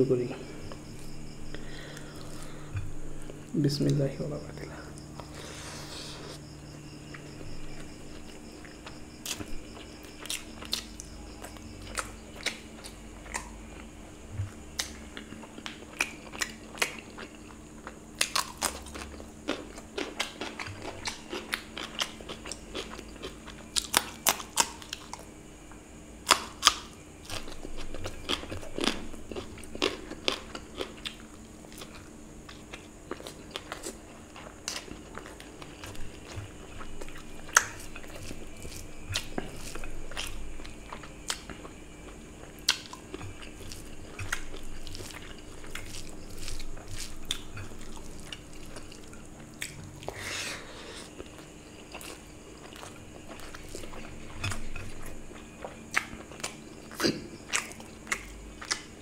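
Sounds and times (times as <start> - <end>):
faint steady hum: 0.0 - 59.0
wet chewing and lip smacks: 8.4 - 25.3, 51.1 - 59.0.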